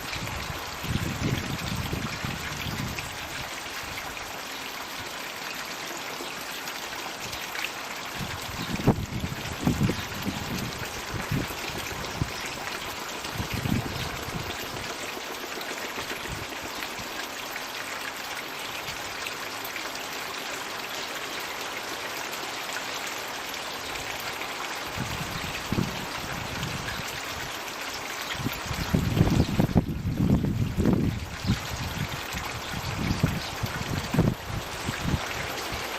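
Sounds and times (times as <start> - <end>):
water pouring into pond: 0.0 - 35.9.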